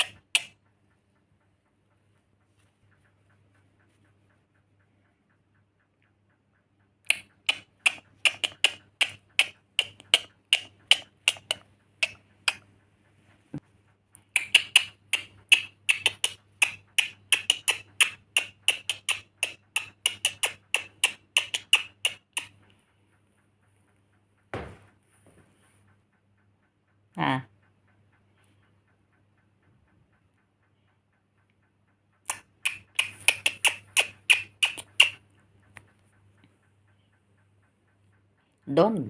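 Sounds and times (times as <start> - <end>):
sharp clicks: 0.0 - 25.0, 25.8 - 38.6
low thump: 24.5 - 24.9.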